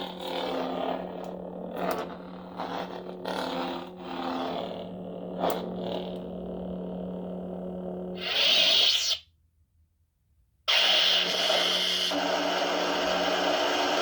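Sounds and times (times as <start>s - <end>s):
lightsaber blade hum: 0.0s - 9.2s
lightsaber ignition burst: 8.2s - 9.2s, 10.7s - 12.2s.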